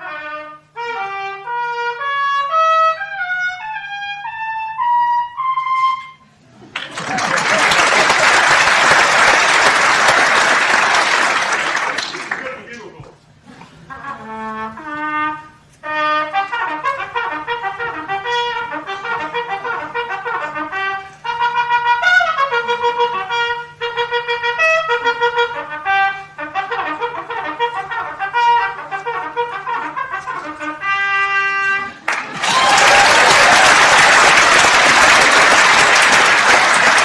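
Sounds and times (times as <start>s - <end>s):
brass mouthpiece playing fast tune: 0.0s - 6.2s, 7.3s - 12.3s, 13.9s - 32.0s.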